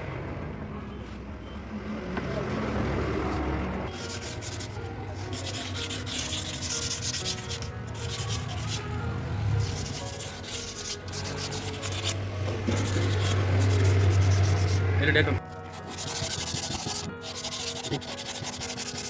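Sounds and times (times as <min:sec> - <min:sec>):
sandpaper rasping on metal: 0:03.9 - 0:08.9, 0:09.6 - 0:19.0.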